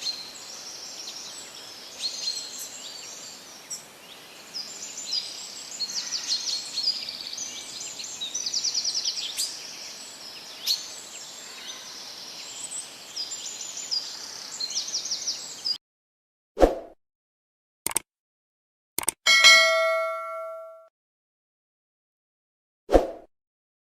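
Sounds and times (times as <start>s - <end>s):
birds chirping and singing: 0.0s - 15.8s
steady outdoor hiss: 0.0s - 15.8s
brief clicks: 17.9s - 18.1s, 19.0s - 19.2s.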